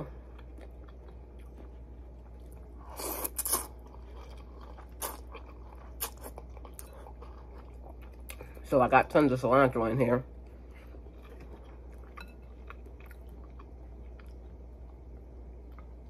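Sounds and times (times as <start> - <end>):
person chewing noodles: 0.0 - 8.6, 10.4 - 16.0
faint low hum: 0.0 - 16.0.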